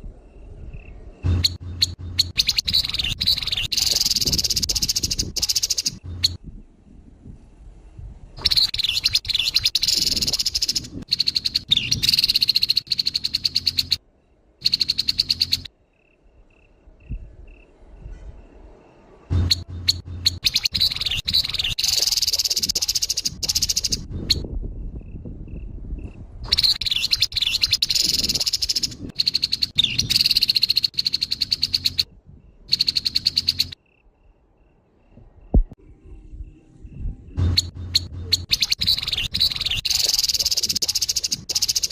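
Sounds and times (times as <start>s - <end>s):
bird rattling calls: 1.3s - 6.4s, 8.4s - 14.0s, 14.6s - 15.7s, 19.4s - 24.4s, 26.5s - 32.0s, 32.7s - 33.8s, 37.4s - 41.9s.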